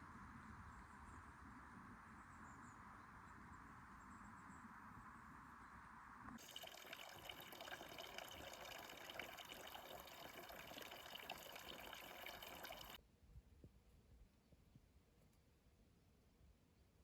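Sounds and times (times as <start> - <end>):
faint running water: 6.4 - 13.0.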